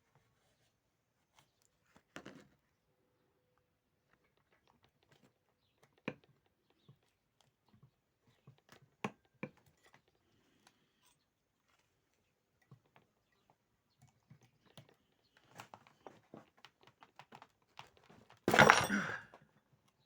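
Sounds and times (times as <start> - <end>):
tools and metal parts clicking: 18.5 - 19.2.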